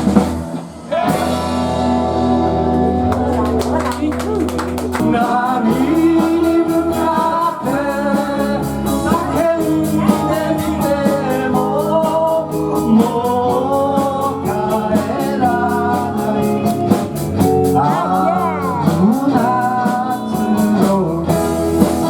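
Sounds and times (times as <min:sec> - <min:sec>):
drum beat with cymbals: 0:00.0 - 0:02.3, 0:03.2 - 0:22.0
electric guitars: 0:00.0 - 0:22.0
person singing: 0:03.2 - 0:22.0.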